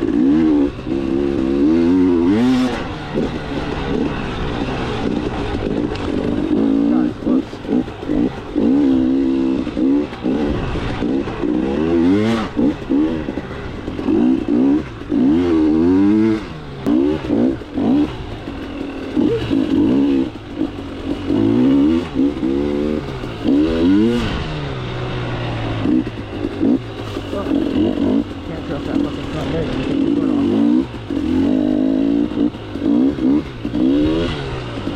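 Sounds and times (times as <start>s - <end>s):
dirt bike engine revving: 0.0s - 34.9s.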